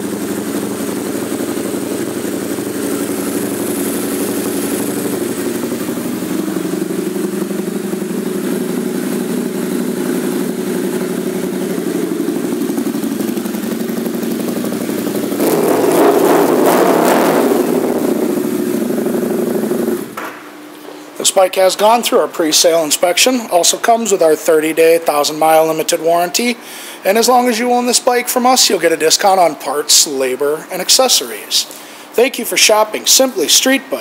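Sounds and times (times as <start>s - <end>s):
motorcycle engine idling and revving: 0.0s - 20.6s.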